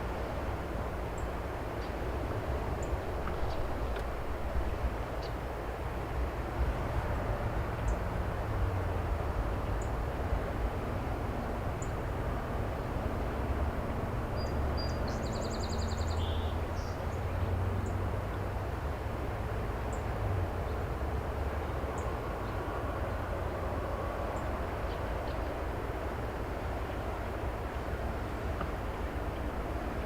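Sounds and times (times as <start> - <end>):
bird trilled song: 14.4 - 17.0.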